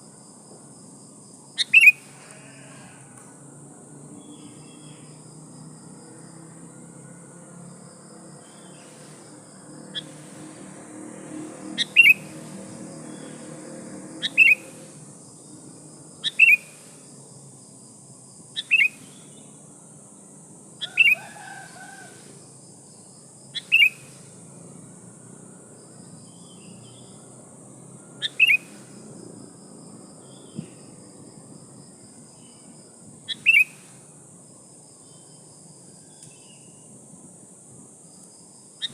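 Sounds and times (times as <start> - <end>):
cricket trill: 0.0 - 38.9
high insect hiss: 0.0 - 38.9
bird sharp calls: 1.6 - 2.2, 9.9 - 10.4, 11.8 - 13.4, 14.2 - 14.9, 16.2 - 17.0, 18.6 - 19.3, 20.8 - 22.3, 23.6 - 24.2, 28.2 - 28.9, 33.3 - 34.0.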